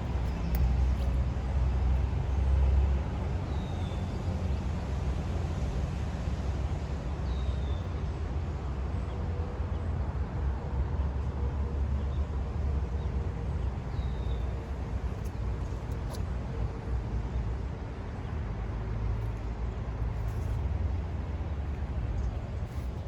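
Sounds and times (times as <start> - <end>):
low outdoor rumble: 0.0 - 7.2, 13.2 - 23.0.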